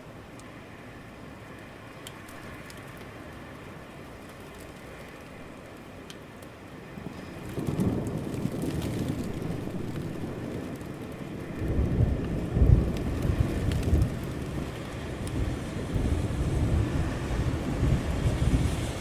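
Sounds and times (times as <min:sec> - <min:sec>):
steady rain falling: 0:00.0 - 0:19.0
thunder rumbling: 0:07.0 - 0:19.0.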